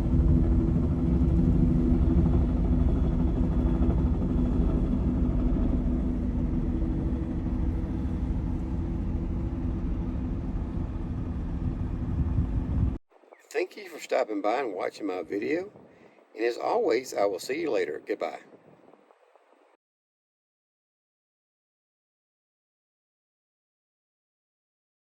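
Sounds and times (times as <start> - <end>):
helicopter turbine and rotors: 0.0 - 19.8.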